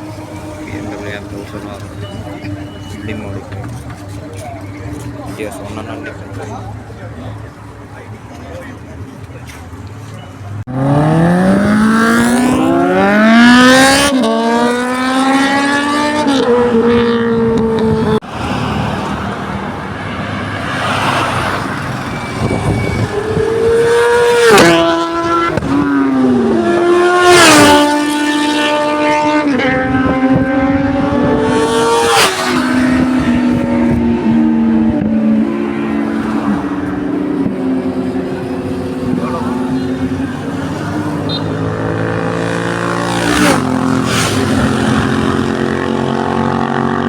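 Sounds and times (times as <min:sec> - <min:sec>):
motorcycles accelerating past: 0:10.7 - 0:47.0.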